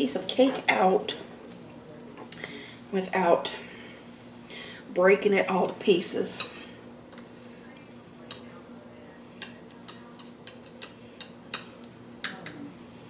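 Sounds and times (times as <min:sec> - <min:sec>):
faint steady hum: 0:00.0 - 0:13.0
cutlery tapping a dish: 0:09.4 - 0:12.6.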